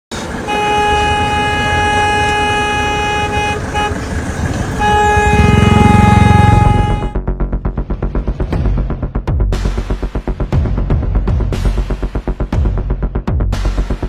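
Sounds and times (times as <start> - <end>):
vehicle horn blaring: 0.1 - 7.2
vehicle engine rumbling: 0.1 - 9.0.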